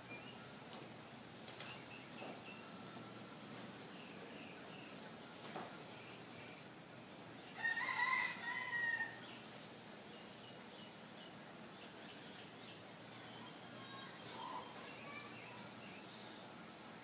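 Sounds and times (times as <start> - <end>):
faint bird chirps: 10.2 - 17.0.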